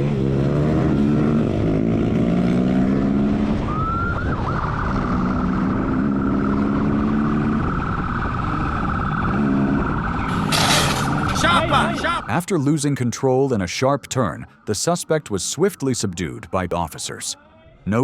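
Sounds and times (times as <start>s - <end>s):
motorcycle engine accelerating: 0.0s - 12.2s
police siren: 3.3s - 12.7s, 13.6s - 17.6s.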